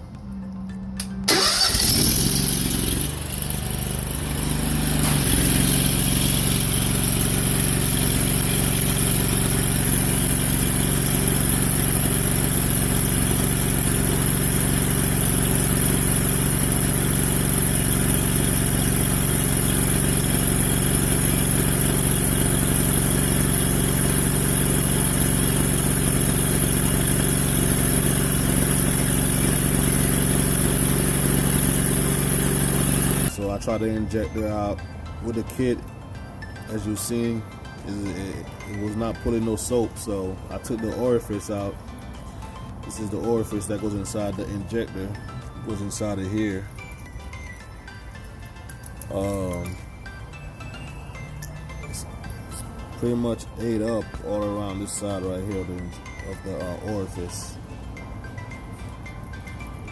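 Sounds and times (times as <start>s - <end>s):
pressure washer engine running: 1.3s - 33.5s, 48.8s - 49.8s.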